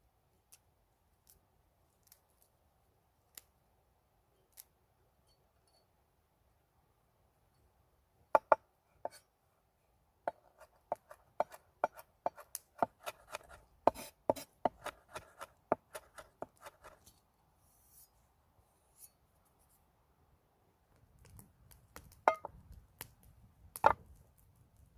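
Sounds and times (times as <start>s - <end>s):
knife chopping vegetables: 10.3s - 17.0s.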